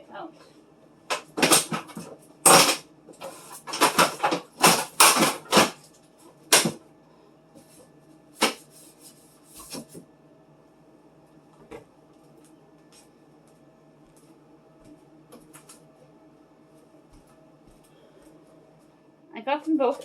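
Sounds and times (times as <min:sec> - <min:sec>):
fridge shelf knocking and clattering: 0:01.1 - 0:05.8, 0:06.5 - 0:06.8.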